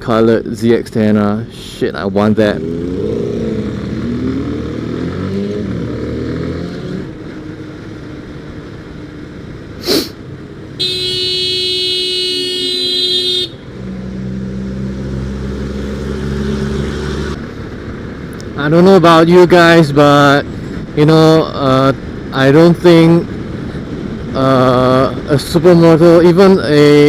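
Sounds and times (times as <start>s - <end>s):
vehicle horn blast: 10.8s - 13.7s.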